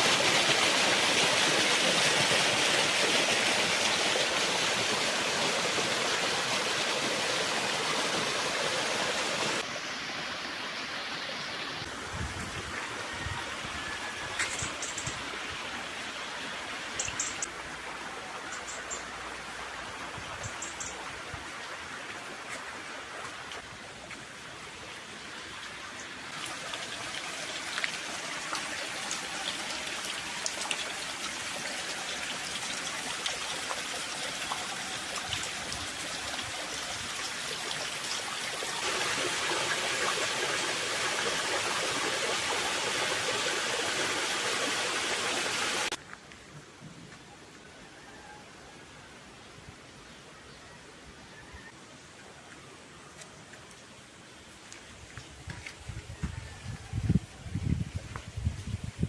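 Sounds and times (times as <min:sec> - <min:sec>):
stream water rushing: 0:00.0 - 0:18.6, 0:19.2 - 0:46.0.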